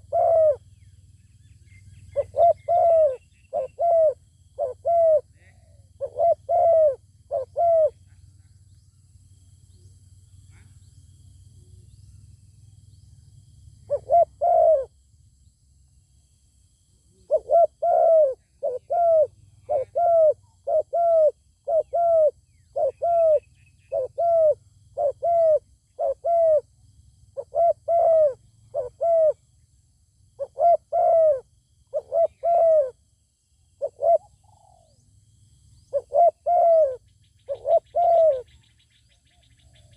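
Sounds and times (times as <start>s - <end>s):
doves cooing: 0.0s - 0.6s, 2.1s - 8.0s, 13.9s - 14.9s, 17.2s - 26.7s, 27.4s - 29.4s, 30.4s - 33.0s, 33.8s - 35.0s, 35.9s - 38.6s.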